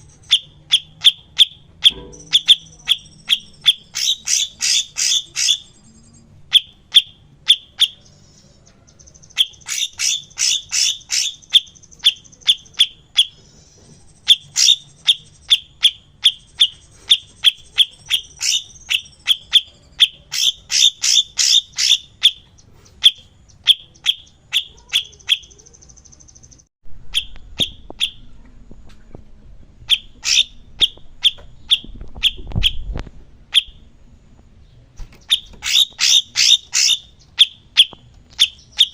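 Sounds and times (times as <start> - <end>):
songbird chirping: 0.0 - 29.2, 29.8 - 38.9
low rumble: 26.5 - 35.0.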